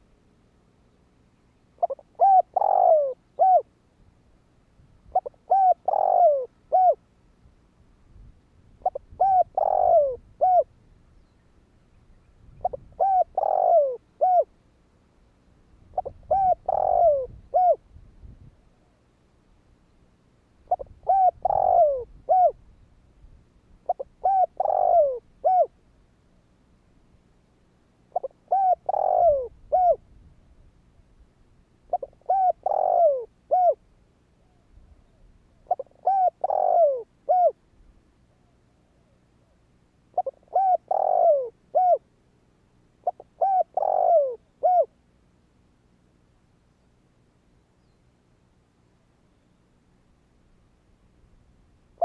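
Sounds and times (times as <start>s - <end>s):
dove cooing: 1.8s - 3.7s, 5.1s - 7.0s, 8.8s - 10.7s, 12.5s - 14.5s, 15.9s - 17.8s, 20.7s - 22.6s, 23.8s - 25.8s, 28.1s - 30.0s, 31.9s - 33.8s, 34.4s - 37.6s, 40.1s - 42.1s, 43.0s - 45.0s.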